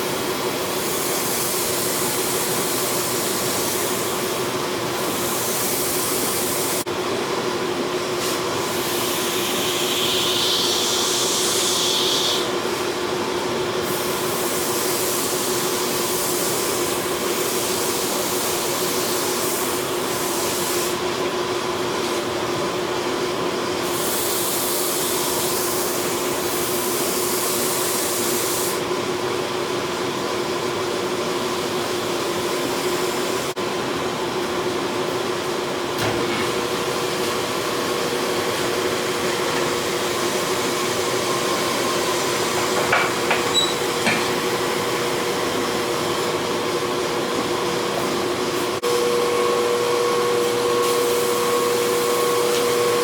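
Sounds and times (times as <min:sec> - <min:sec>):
forge roaring and humming: 0:36.0 - 0:53.0.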